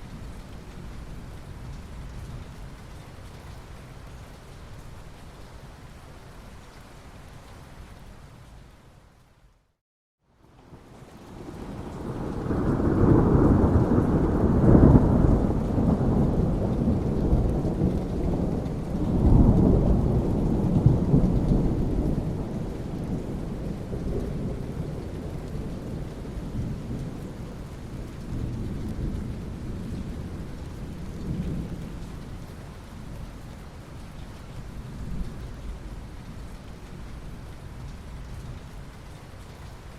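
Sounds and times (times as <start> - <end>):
steady rain: 0.0 - 39.9
thunder rolling: 10.7 - 27.2.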